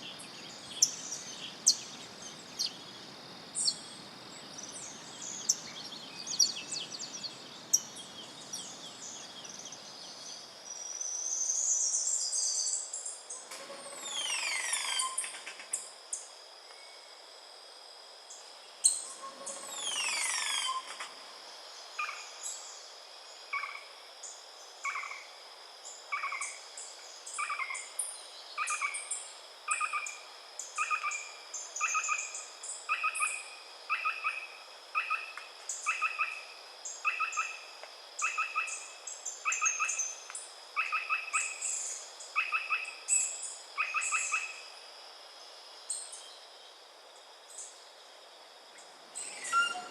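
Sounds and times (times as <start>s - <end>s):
long falling whistled bird calls: 0.0s - 3.0s, 3.6s - 15.9s, 18.8s - 21.1s, 26.1s - 44.7s, 48.8s - 49.9s
high insect drone: 0.0s - 49.9s
high bird chirps: 49.2s - 49.9s.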